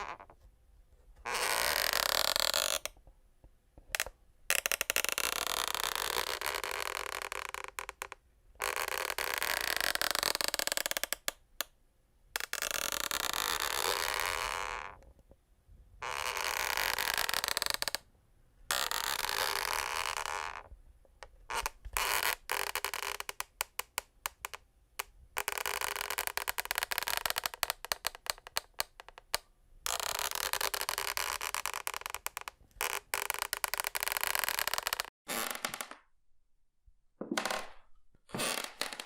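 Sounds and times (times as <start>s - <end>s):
wooden floorboards creaking: 0.0s - 0.4s, 30.0s - 36.1s, 37.2s - 39.0s.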